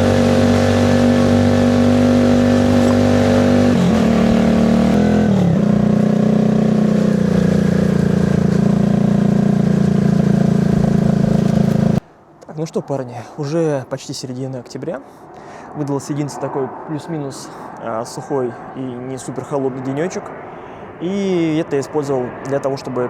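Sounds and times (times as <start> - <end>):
moped engine running: 0.0 - 12.0.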